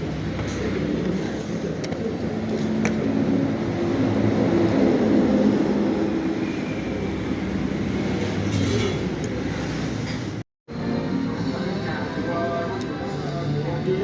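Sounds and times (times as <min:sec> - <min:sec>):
airplane passing overhead: 0:00.8 - 0:08.6.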